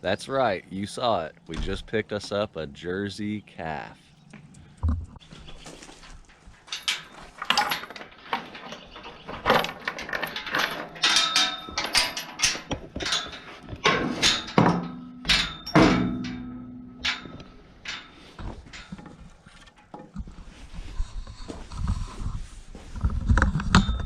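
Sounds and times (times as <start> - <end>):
calf knocking and clattering: 5.7 - 20.4.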